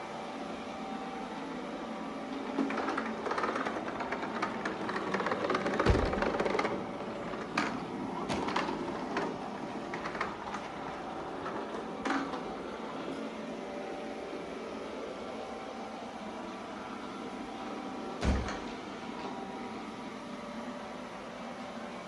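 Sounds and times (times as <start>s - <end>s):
robot vacuum motor and brush hum: 1.4s - 18.1s.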